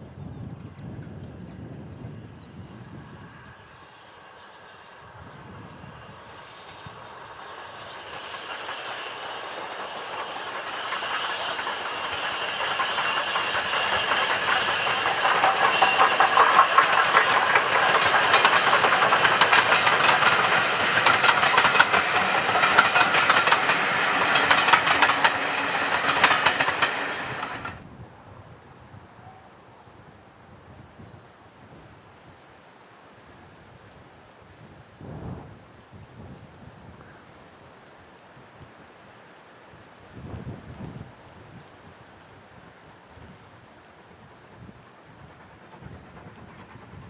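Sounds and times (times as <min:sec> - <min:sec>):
steam train passing: 0:01.6 - 0:28.3, 0:34.6 - 0:47.0
wheels clicking over rail joints: 0:06.4 - 0:27.8, 0:43.8 - 0:47.0.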